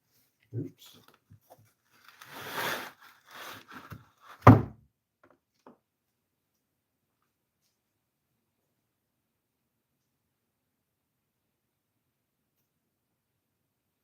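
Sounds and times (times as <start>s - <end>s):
rustling and scraping of pots: 0.0s - 4.6s.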